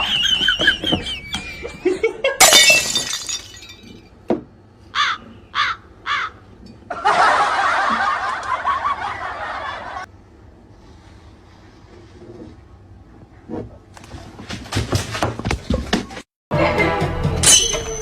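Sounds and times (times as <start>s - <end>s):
harsh falling calls: 4.9s - 6.6s.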